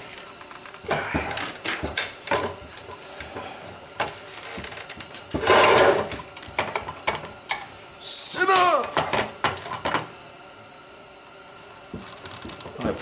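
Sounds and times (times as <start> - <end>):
scraping rub: 0.8 - 6.2.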